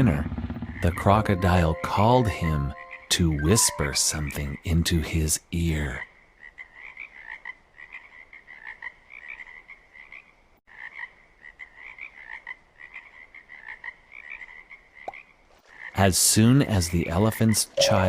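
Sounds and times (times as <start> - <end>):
frogs croaking: 2.7 - 3.1, 5.6 - 16.1.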